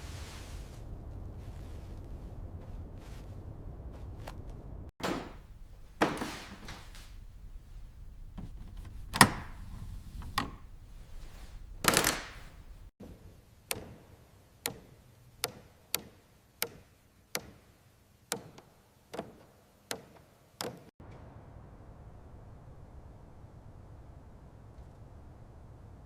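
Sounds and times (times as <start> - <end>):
hand tool tapping: 5.0 - 12.9.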